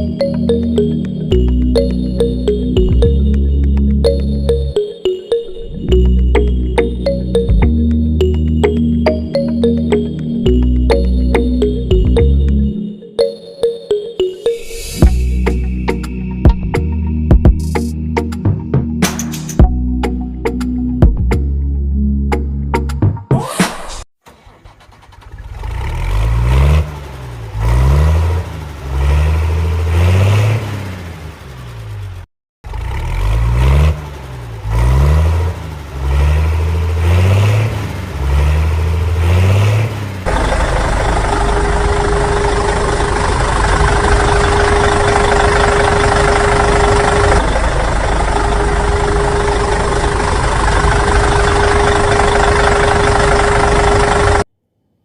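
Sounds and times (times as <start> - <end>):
engine running with whine: 0.0 - 13.3, 14.6 - 22.8, 24.3 - 54.5
vehicle engine revving: 24.3 - 54.5.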